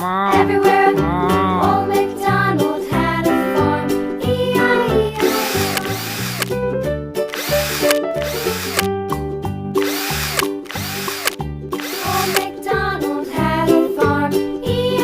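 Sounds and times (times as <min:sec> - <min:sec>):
children's music: 0:00.0 - 0:07.4, 0:11.4 - 0:15.0
power drill whining: 0:05.2 - 0:06.6, 0:07.3 - 0:08.9, 0:09.8 - 0:12.5.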